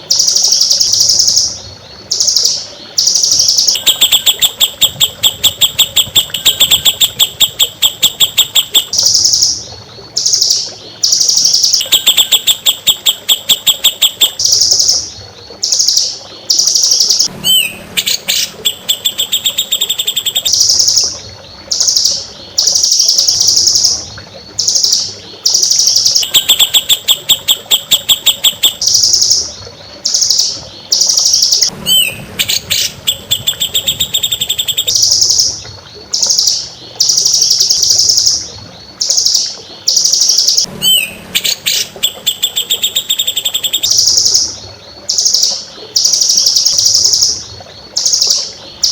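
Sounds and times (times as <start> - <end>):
songbird trilling: 0.1 - 21.1, 24.6 - 29.4, 30.1 - 35.6, 39.1 - 44.5
rising whistle: 17.4 - 20.4, 31.8 - 34.9, 40.8 - 43.5.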